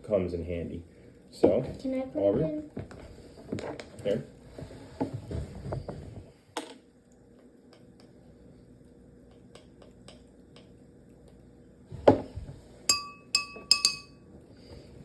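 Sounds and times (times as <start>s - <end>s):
spoon clinking against glass cup: 12.9s - 14.2s.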